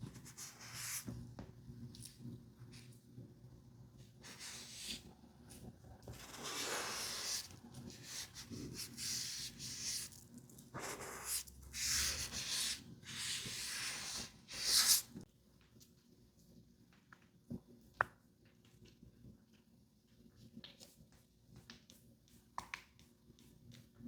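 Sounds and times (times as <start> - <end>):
brush rubbing on plastic: 6.2 - 10.1.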